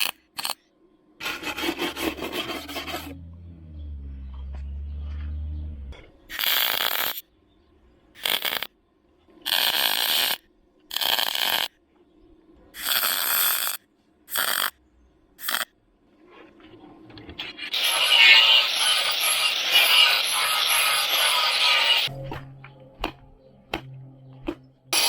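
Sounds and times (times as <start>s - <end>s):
welder crackling: 6.3s - 7.2s, 8.2s - 8.7s, 9.5s - 11.7s, 17.7s - 22.1s.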